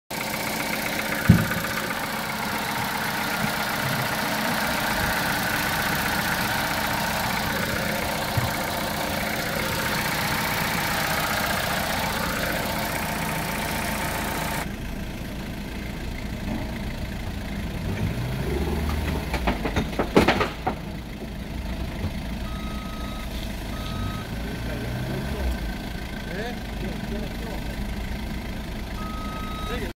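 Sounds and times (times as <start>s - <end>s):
car engine idling: 0.1s - 29.9s
knocks and clicks: 7.5s - 9.9s, 18.9s - 20.8s.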